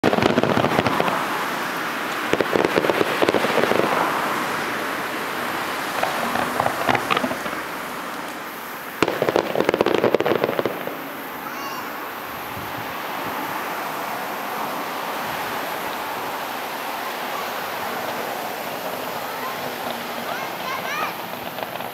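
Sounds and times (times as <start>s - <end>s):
firework bang: 0.0s - 4.4s, 5.9s - 8.4s, 9.0s - 11.9s, 19.5s - 21.9s
fireworks crackling: 0.0s - 21.9s.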